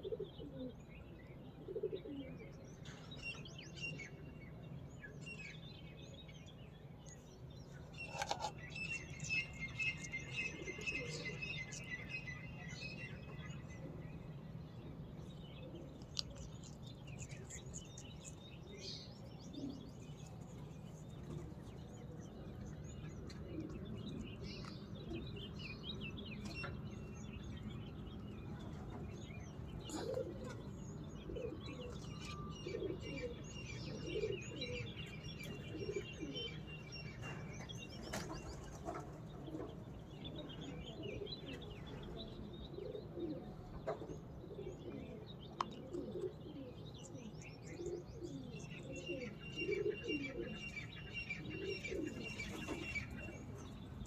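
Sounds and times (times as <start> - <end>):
birds chirping and twittering: 0.0 - 54.0.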